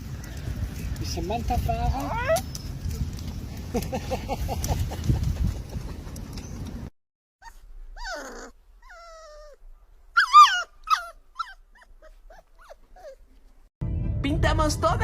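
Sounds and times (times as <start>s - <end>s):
dog whining and yelping: 7.4s - 13.4s.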